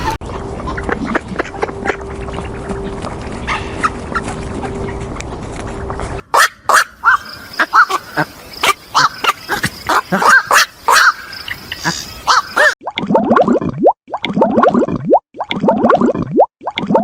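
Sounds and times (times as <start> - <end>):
rapid loud pitched animal calls: 6.3 - 12.8.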